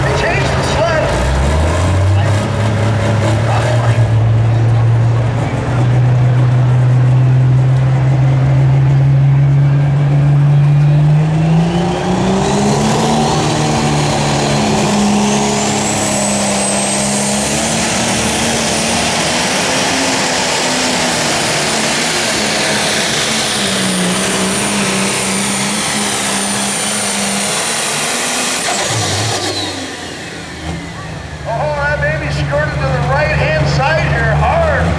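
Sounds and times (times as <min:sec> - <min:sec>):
high turbo whine: 0:00.0 - 0:34.9
turbocharged diesel engine: 0:00.0 - 0:34.9.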